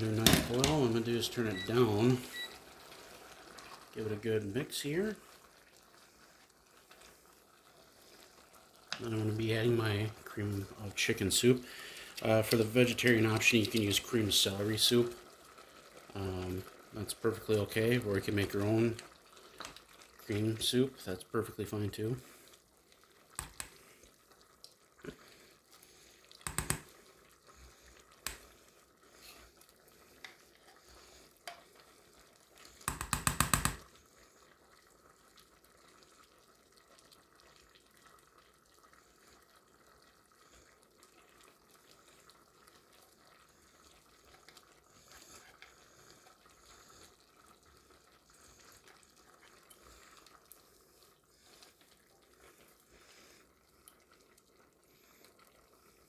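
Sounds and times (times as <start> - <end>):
light stirring: 0.0 - 34.4
pot simmering: 0.0 - 56.0
knocks in a pot: 0.2 - 0.7, 32.9 - 33.8.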